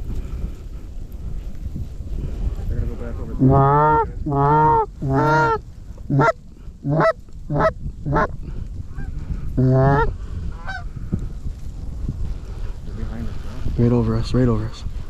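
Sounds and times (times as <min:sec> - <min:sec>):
wind rumble on microphone: 0:00.0 - 0:15.0
goose honking: 0:03.4 - 0:08.4, 0:09.0 - 0:10.8
goose clucks: 0:03.4 - 0:10.8.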